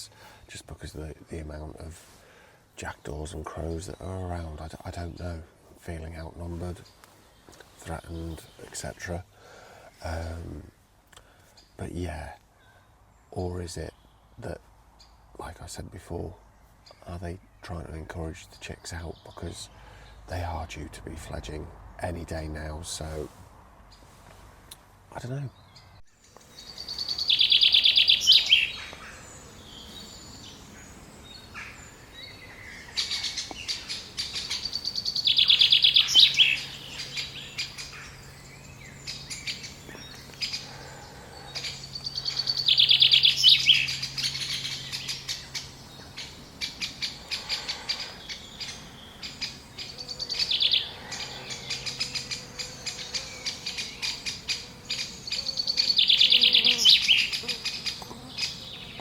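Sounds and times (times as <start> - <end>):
woodpecker chicks chattering: 25.2 - 59.0.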